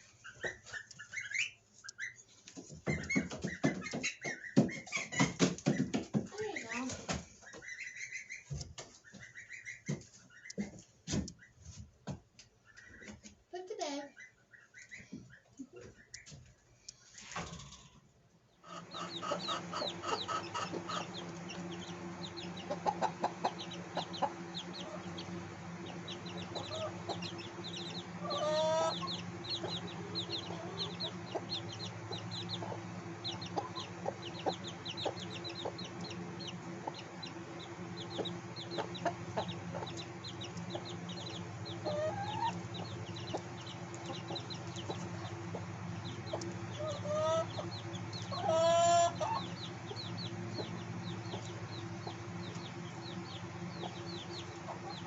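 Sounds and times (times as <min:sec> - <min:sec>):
hen clucking: 0:00.0 - 0:11.7, 0:12.6 - 0:16.5, 0:18.6 - 0:55.0
hatchlings peeping: 0:00.0 - 0:55.0
low steady hum: 0:12.7 - 0:55.0
upward-sweeping calls: 0:18.8 - 0:55.0.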